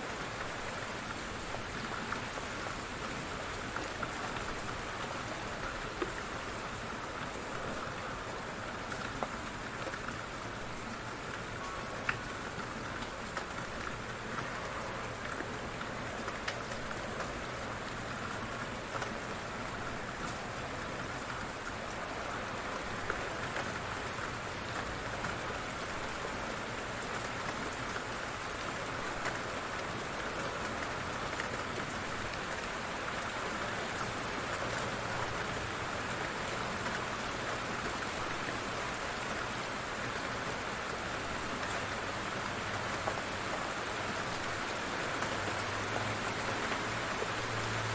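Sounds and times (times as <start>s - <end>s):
light rain pattering: 0.0s - 47.9s.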